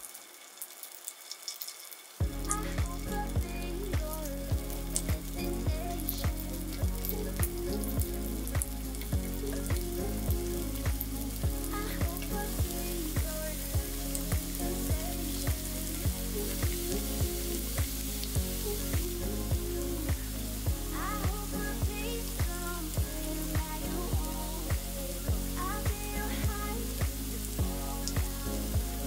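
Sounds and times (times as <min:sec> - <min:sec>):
food sizzling in oil: 0:00.0 - 0:02.6
background music with beat: 0:02.2 - 0:29.0.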